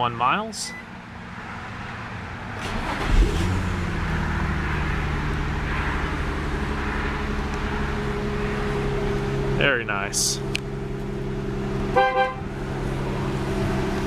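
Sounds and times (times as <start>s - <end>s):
car engine idling: 1.0s - 14.0s
car engine cranking and starting: 2.5s - 9.6s.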